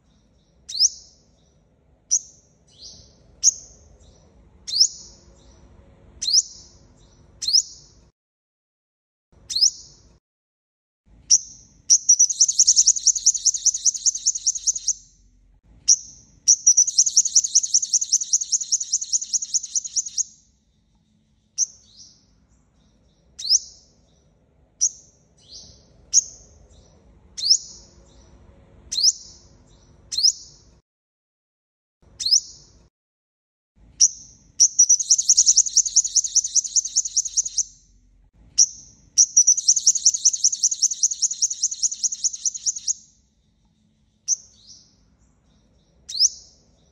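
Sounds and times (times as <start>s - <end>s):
fast high bird trills: 11.9s - 15.0s, 16.5s - 20.2s, 34.6s - 37.8s, 39.2s - 43.0s
bird chip notes: 12.0s - 15.0s.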